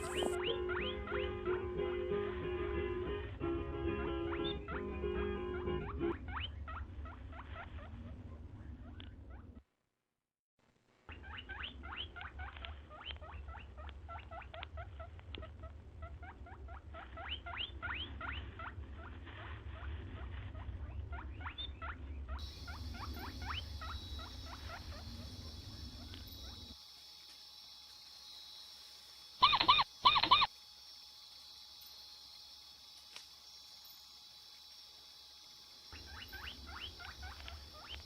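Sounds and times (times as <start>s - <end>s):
hedgehog squeaking: 0.0s - 1.6s, 4.3s - 5.0s, 5.8s - 9.6s, 11.1s - 26.8s, 29.4s - 30.5s, 35.9s - 38.0s.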